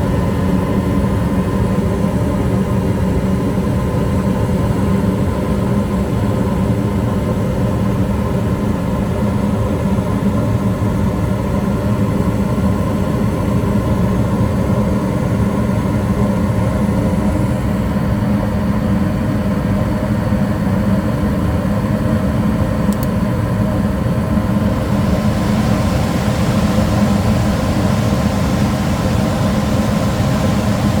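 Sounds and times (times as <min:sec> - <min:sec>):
gas furnace motor humming: 0:21.1 - 0:31.0.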